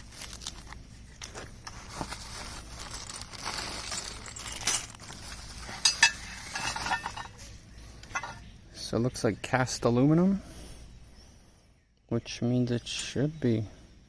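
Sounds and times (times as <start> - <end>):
plastic packaging rustling: 0.0 - 8.4
metal parts clinking: 1.2 - 8.4.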